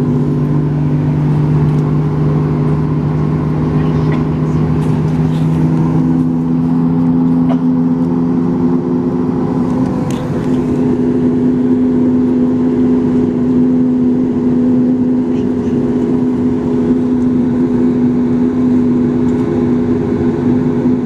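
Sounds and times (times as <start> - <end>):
jet engine humming in cabin: 0.0 - 21.0.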